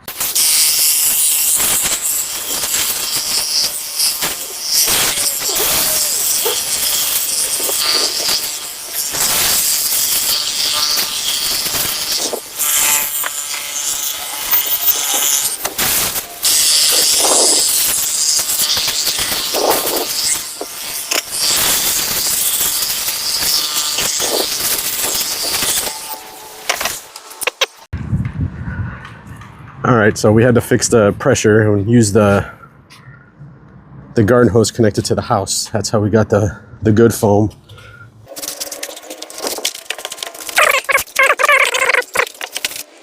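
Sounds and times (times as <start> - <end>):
pressure washer spraying water: 0.1 - 27.1.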